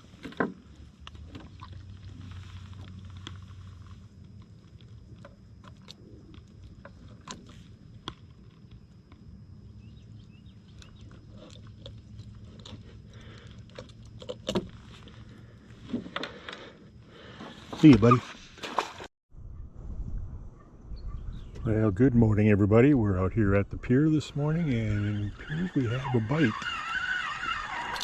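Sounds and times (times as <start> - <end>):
steady low rumble: 19.3 - 26.3.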